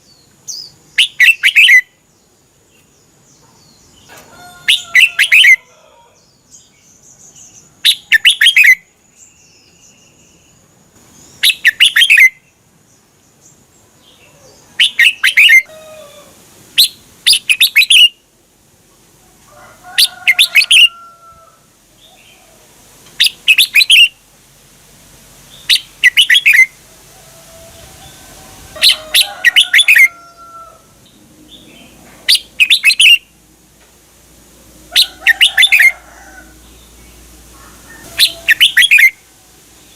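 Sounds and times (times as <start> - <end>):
bird singing song phrases: 0.0 - 15.7, 23.2 - 24.2, 25.5 - 26.8, 31.1 - 33.4, 38.0 - 39.2
soft whistled bird calls: 0.5 - 1.9, 23.2 - 24.2, 25.7 - 26.7, 32.3 - 33.3, 37.6 - 39.2.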